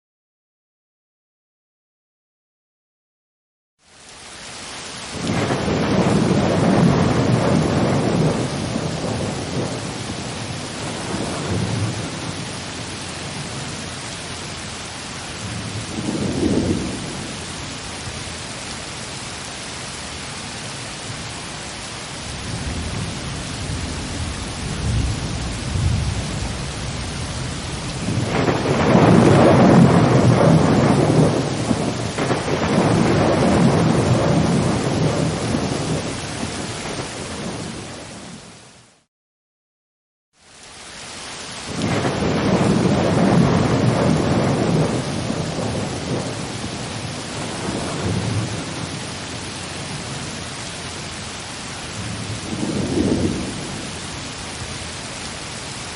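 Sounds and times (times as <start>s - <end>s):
steady rain: 3.8s - 39.1s, 40.4s - 55.9s
rolling thunder: 5.1s - 13.8s, 15.4s - 17.5s, 22.5s - 38.4s, 41.7s - 50.4s, 51.9s - 54.2s.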